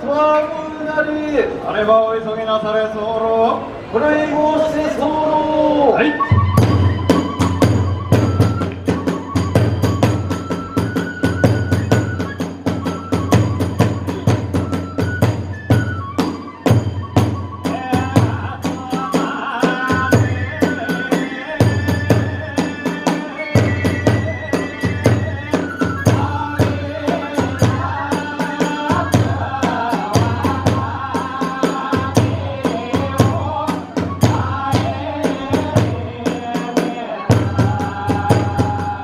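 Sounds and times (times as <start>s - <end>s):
wavering high melody: 6.0s - 29.3s
rapid drum beats: 6.4s - 39.0s.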